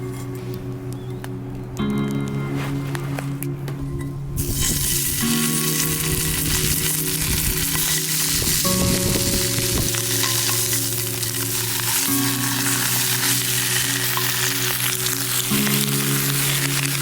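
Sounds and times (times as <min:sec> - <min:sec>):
food sizzling on fire: 0:04.4 - 0:17.0.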